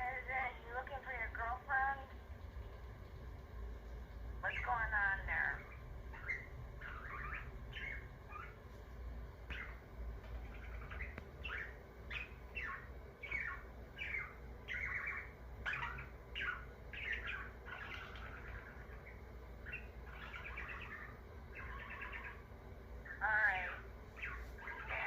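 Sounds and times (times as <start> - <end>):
budgerigar chirping and warbling: 4.4 - 8.6, 9.5 - 25.0.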